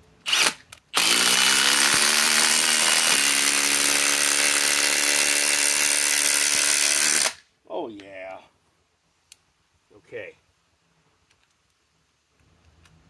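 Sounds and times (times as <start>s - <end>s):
impact driver hammering: 1.0s - 7.3s.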